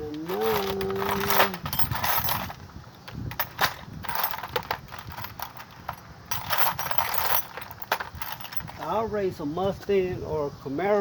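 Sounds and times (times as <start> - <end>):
metal parts and tools clinking: 0.1 - 9.0.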